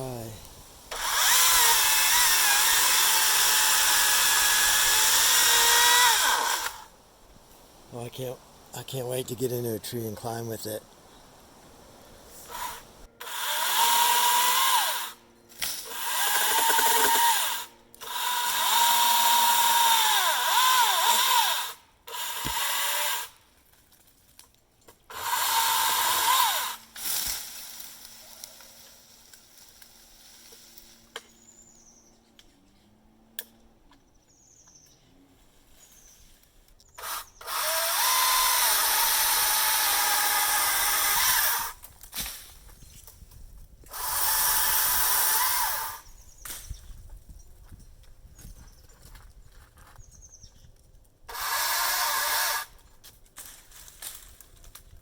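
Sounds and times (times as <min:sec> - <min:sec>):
chainsaw cutting wood: 0:00.9 - 0:06.9, 0:12.4 - 0:23.4, 0:25.1 - 0:31.4, 0:36.9 - 0:42.6, 0:43.8 - 0:46.7, 0:51.3 - 0:52.8.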